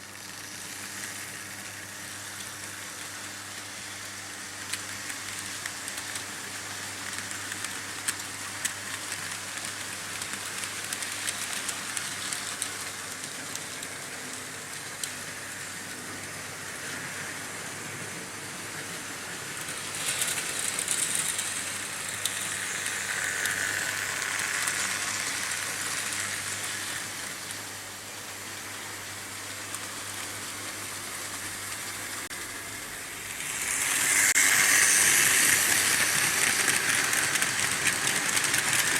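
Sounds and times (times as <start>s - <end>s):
model trains rolling on metal track: 0.0s - 38.9s
wheels clicking over rail joints: 33.5s - 38.9s.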